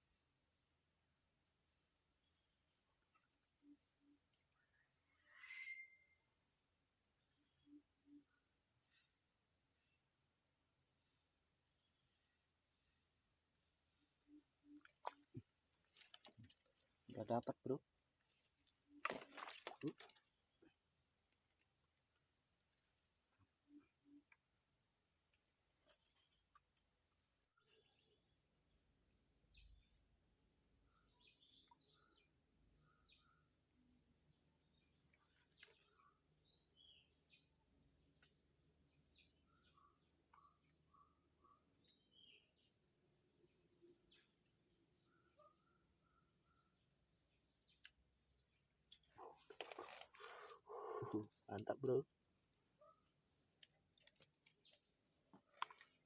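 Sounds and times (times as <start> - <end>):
high-pitched insect chorus: 0.0 - 56.0
short bird chirps: 5.2 - 6.2.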